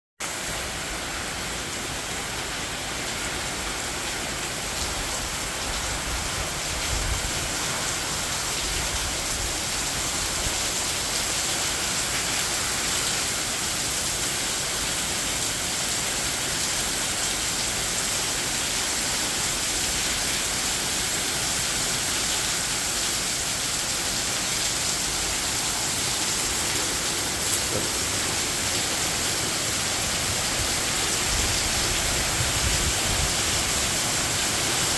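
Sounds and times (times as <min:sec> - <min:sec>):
heavy rain hissing: 0:00.3 - 0:34.9
wind rumbling: 0:26.0 - 0:34.3.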